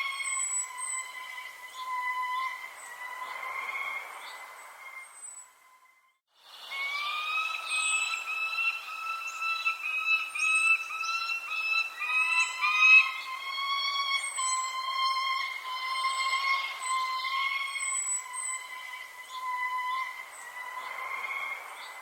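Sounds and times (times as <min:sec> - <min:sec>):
birds chirping: 0:00.0 - 0:22.0
whistled bird tone: 0:00.0 - 0:22.0.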